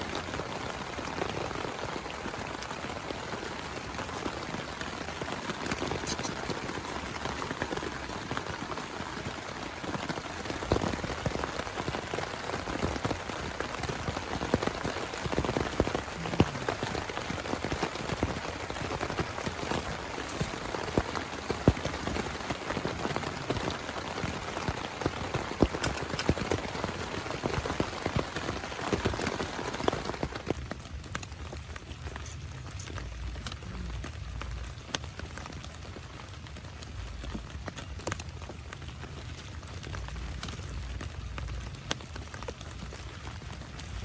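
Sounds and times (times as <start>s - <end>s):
heavy rain falling: 0.0s - 44.0s
raindrops tapping: 0.0s - 44.0s.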